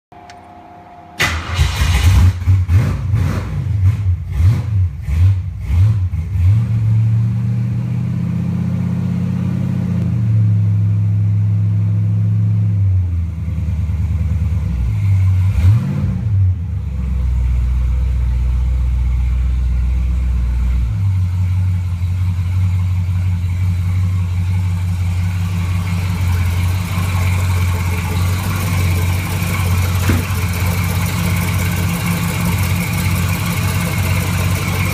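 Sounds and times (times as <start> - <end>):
engine starting and revving: 1.2 - 7.0, 15.4 - 16.5
engine idling: 17.2 - 34.9.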